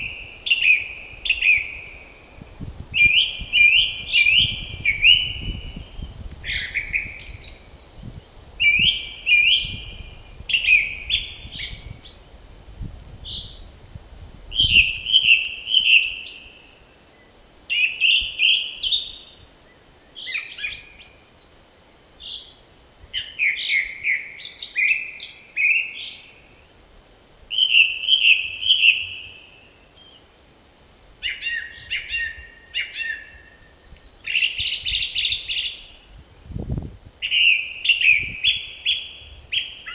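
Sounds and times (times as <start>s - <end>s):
songbirds singing: 0.0s - 13.9s, 14.5s - 30.6s, 31.2s - 39.9s
wind rumbling on microphone: 0.0s - 16.8s, 30.9s - 39.9s.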